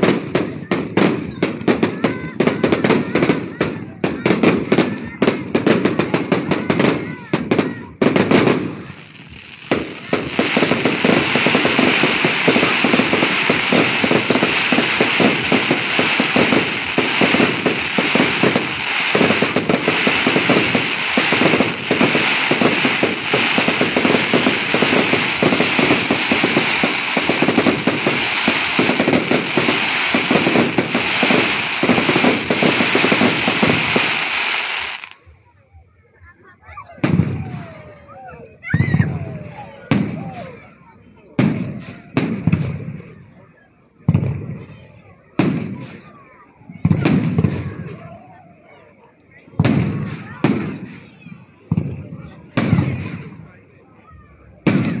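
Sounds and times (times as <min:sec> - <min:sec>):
fireworks bursting crackle: 0:00.0 - 0:35.2
fireworks fountains hissing crackle: 0:00.0 - 0:35.4, 0:37.0 - 0:55.0.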